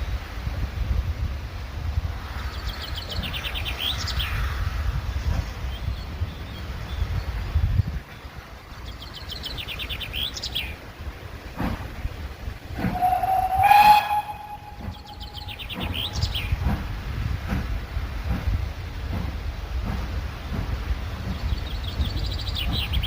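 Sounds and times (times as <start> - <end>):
low rumble: 12.5 - 16.8
steam locomotive whistle: 12.8 - 15.7
songbird trilling: 12.8 - 16.6.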